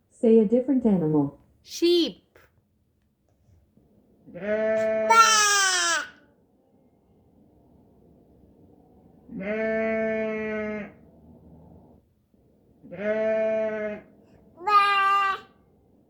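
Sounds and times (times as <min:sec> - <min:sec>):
recorded sheep bleating: 0:04.3 - 0:06.1, 0:09.3 - 0:11.0, 0:12.9 - 0:15.5.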